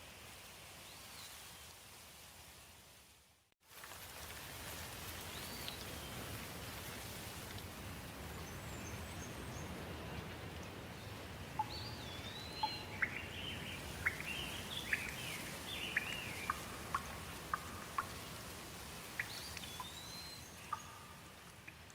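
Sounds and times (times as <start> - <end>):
steady rain: 0.0 - 21.9
songbirds singing: 8.3 - 18.5, 19.1 - 21.8.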